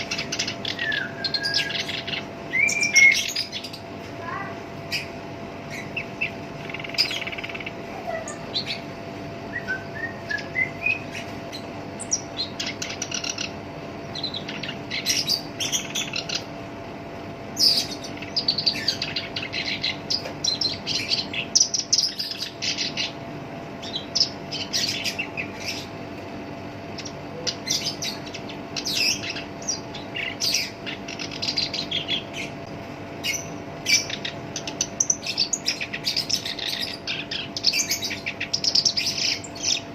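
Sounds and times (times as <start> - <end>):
warbler scratchy chattering song: 0.0 - 16.7, 17.5 - 39.9
faint steady hum: 0.0 - 39.9.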